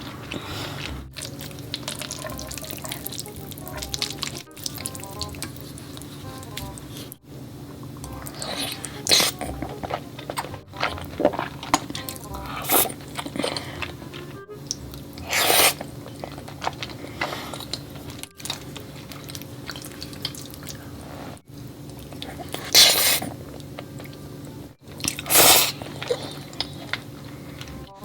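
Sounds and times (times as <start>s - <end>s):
slurping and chewing noodles: 0.0s - 7.2s, 8.0s - 24.2s, 24.8s - 28.0s
background music: 0.5s - 7.3s, 8.0s - 19.0s, 27.6s - 28.0s.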